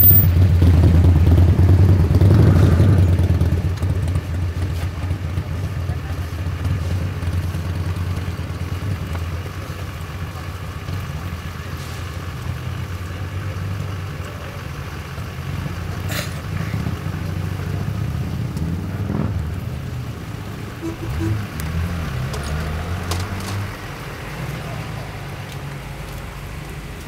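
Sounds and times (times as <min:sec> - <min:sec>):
vehicle engines rumbling: 0:00.0 - 0:27.0
brief sharp sound: 0:20.8 - 0:21.5.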